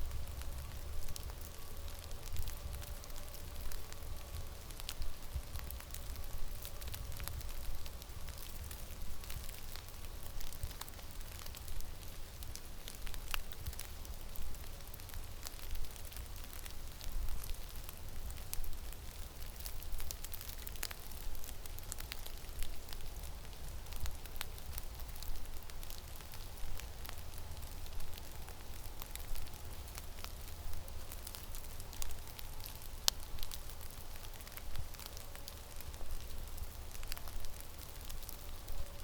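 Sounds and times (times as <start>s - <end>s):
low wind rumble: 0.0s - 19.4s
snow grains ticking: 0.0s - 39.0s.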